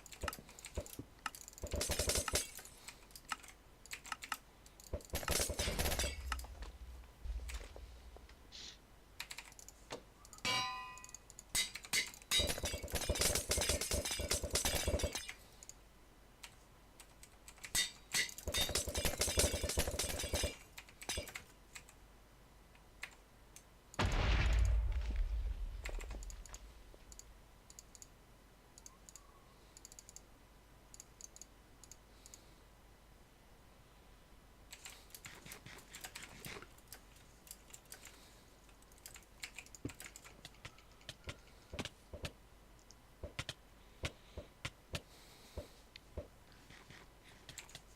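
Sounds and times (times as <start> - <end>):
faint clicks: 25.8 - 30.3, 30.9 - 32.5, 36.0 - 45.0.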